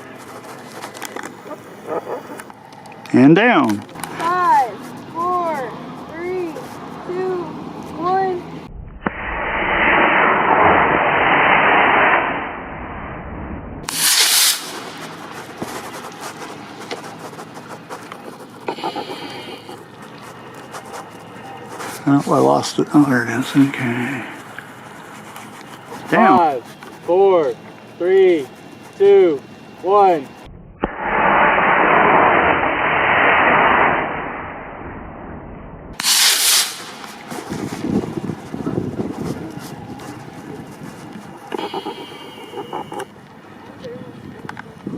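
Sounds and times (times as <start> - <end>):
loud burst of noise: 8.7 - 15.9, 30.5 - 38.3
rocket motor rushing: 9.0 - 12.6, 13.8 - 17.2, 30.8 - 34.8, 36.0 - 38.9
scattered ticks: 14.7 - 29.2, 40.0 - 43.4.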